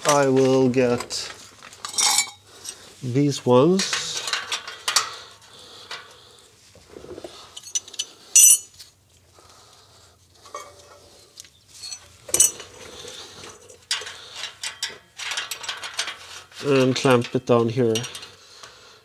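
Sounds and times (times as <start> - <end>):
metal hardware clinking and rattling: 1.8 - 2.8, 3.8 - 5.2, 7.5 - 8.8, 11.7 - 12.8, 13.4 - 18.4.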